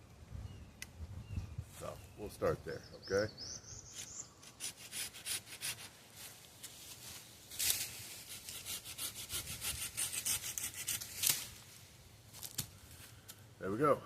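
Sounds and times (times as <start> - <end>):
hand saw cutting wood: 4.5 - 5.9, 8.3 - 11.4.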